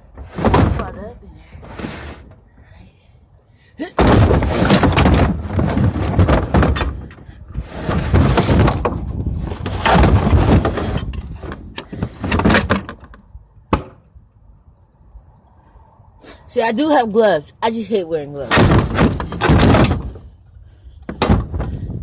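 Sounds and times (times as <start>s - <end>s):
wooden board scraping: 0.0s - 1.0s, 1.6s - 2.4s, 4.0s - 13.2s.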